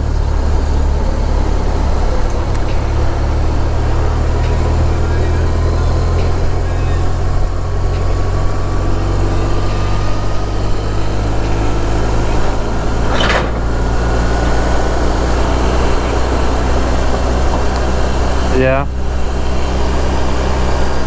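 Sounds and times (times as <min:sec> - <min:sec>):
faint rising whine: 0:00.0 - 0:21.0
motorcycle engine running: 0:00.0 - 0:21.0.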